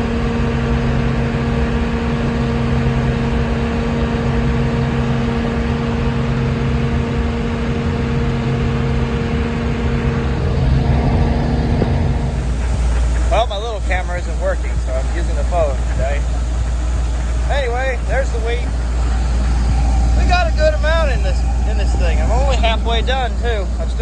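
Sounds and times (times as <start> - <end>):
combine harvester drone: 0.0 - 24.0.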